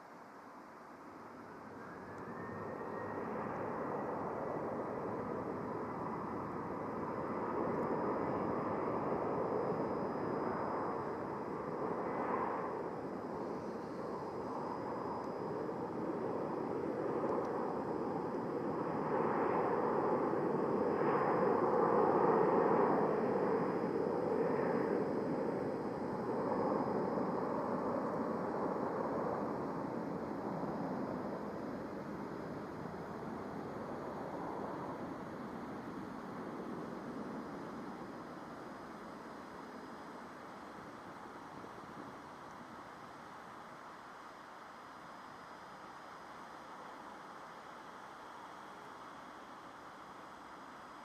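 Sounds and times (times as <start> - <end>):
jet engines rumbling: 1.4 - 43.7.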